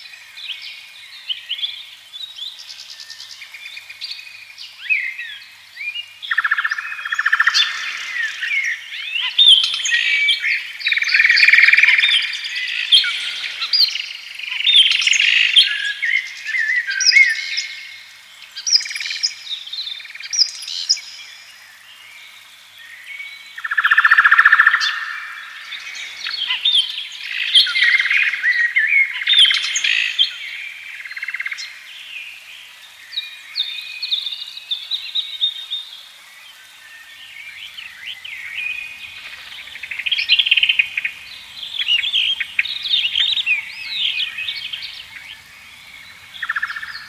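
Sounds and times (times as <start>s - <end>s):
songbirds singing: 0.0s - 47.0s
buzzy bird trill: 37.7s - 47.0s.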